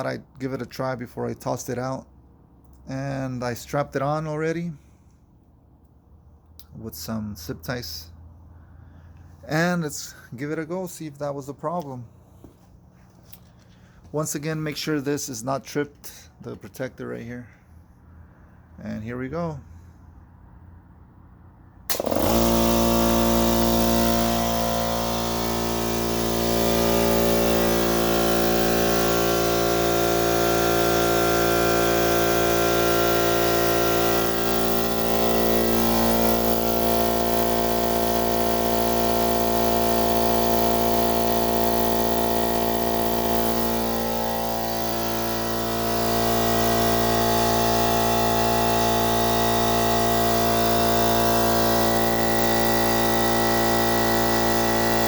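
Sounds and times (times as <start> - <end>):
air compressor running: 4.7 - 6.7, 12.1 - 15.4, 19.6 - 55.0.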